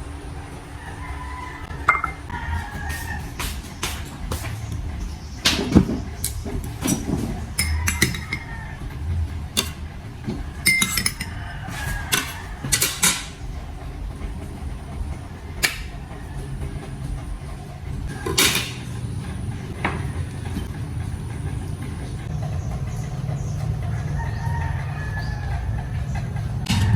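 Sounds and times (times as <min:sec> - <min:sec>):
low background rumble: 0:00.0 - 0:26.9
dishes and utensils clinking: 0:01.6 - 0:13.6, 0:18.1 - 0:22.3.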